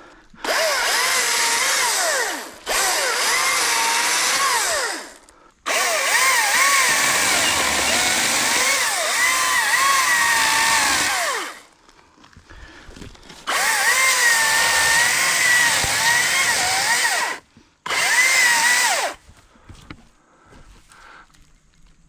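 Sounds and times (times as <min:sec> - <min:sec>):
electric chainsaw motor whining: 0:00.4 - 0:11.7, 0:13.4 - 0:19.2.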